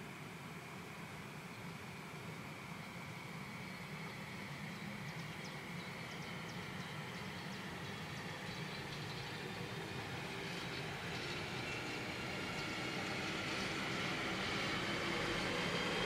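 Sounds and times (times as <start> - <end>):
freight train rumble: 3.2 - 16.0.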